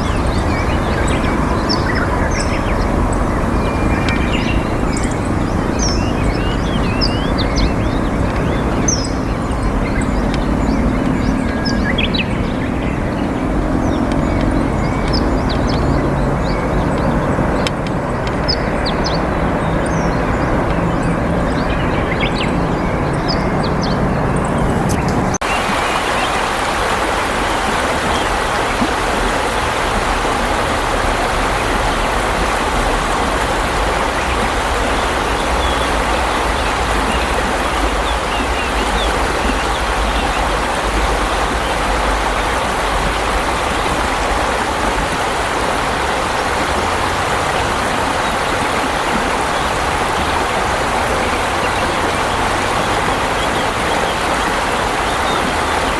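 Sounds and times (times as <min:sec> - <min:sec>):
bird chirps: 0:00.0 - 0:26.5
flowing water rushing: 0:00.0 - 0:55.9
low traffic-like rumble: 0:00.0 - 0:55.9.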